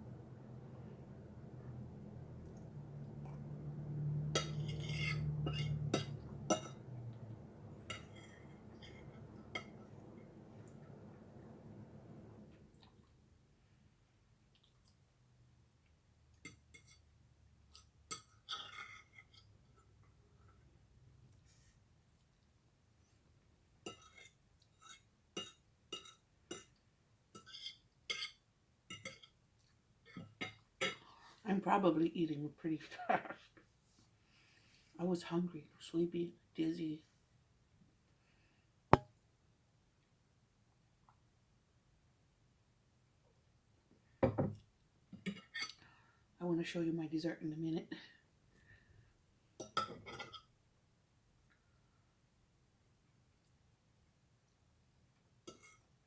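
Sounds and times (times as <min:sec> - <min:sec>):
cutlery clinking against a plate: 0:04.3 - 0:06.9, 0:07.8 - 0:09.8, 0:16.5 - 0:17.1, 0:17.7 - 0:19.6, 0:23.9 - 0:29.4, 0:45.2 - 0:45.8, 0:49.6 - 0:50.5, 0:55.5 - 0:55.9
fork clinking against plate: 0:04.4 - 0:06.8.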